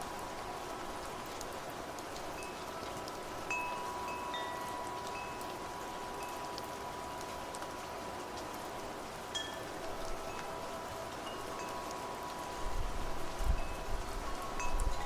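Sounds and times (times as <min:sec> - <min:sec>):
steady rain: 0:00.0 - 0:15.0
wind chimes ringing: 0:02.4 - 0:07.4, 0:09.3 - 0:15.0.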